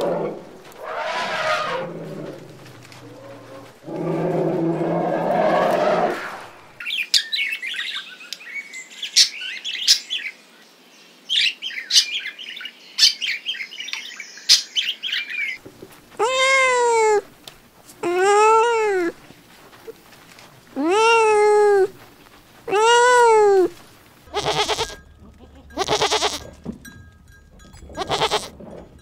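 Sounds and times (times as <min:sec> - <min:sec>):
cockatoos squawking and screeching: 0:00.0 - 0:04.2, 0:16.1 - 0:17.3, 0:18.0 - 0:20.0, 0:20.7 - 0:25.0, 0:25.7 - 0:26.4, 0:27.9 - 0:28.5
kitten meowing: 0:16.2 - 0:17.2, 0:18.0 - 0:19.2, 0:20.8 - 0:22.0, 0:22.7 - 0:25.0, 0:25.8 - 0:26.4, 0:28.0 - 0:28.5.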